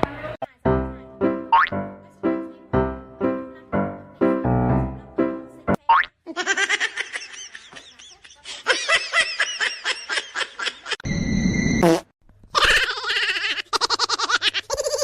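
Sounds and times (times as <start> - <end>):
laughter in bursts: 6.3 - 11.0.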